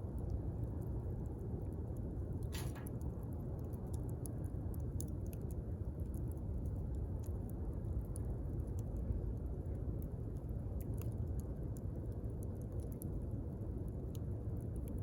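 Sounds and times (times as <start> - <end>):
campfire burning: 0.0 - 15.0
fire pops and crackles: 2.0 - 13.3.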